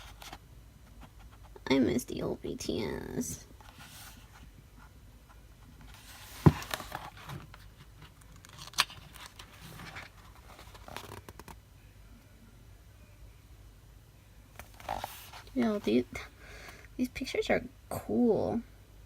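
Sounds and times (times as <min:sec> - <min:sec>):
paper pages rustling: 0:05.8 - 0:11.6, 0:14.6 - 0:15.9.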